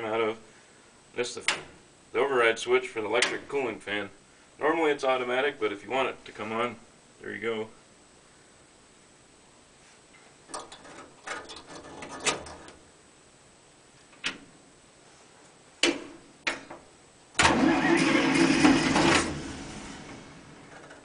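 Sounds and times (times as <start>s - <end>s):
starter cranking engine: 17.4s - 19.8s.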